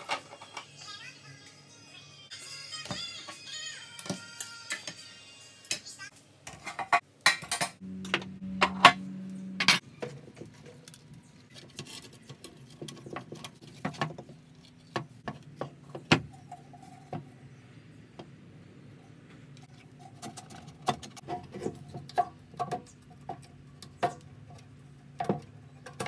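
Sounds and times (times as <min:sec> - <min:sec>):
steady low hum: 0:07.7 - 0:11.5.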